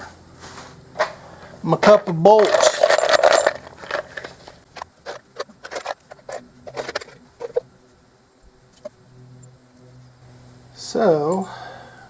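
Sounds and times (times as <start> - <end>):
metal bolts clinking in a cup: 2.4 - 7.6.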